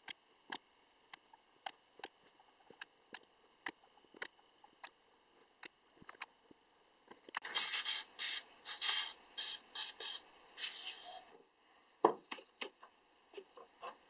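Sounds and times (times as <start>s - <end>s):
aerosol spray hissing bursts: 7.5s - 11.3s.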